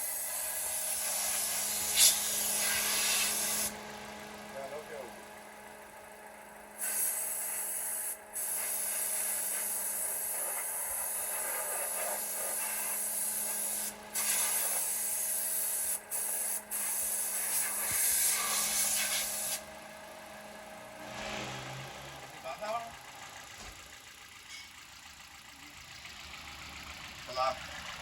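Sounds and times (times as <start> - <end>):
compressed air blow gun hissing: 0.0 - 3.7, 6.8 - 19.6.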